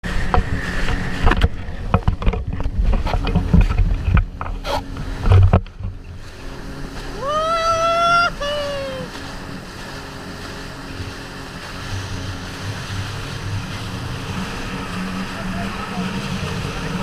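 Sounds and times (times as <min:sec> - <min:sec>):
wind on microphone: 0:00.0 - 0:09.3
hull slapping water: 0:00.0 - 0:17.0
jet ski engine rumble: 0:00.0 - 0:17.0.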